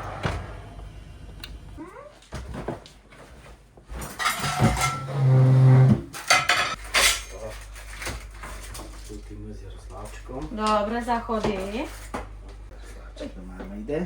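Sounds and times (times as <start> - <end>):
loud low hum: 0.0 - 1.8
dishes and cutlery clattering: 4.0 - 5.2, 6.1 - 9.4.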